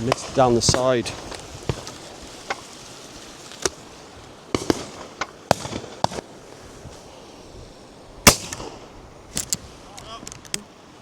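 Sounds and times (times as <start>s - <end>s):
shotgun shots: 4.5s - 6.3s, 8.2s - 8.8s.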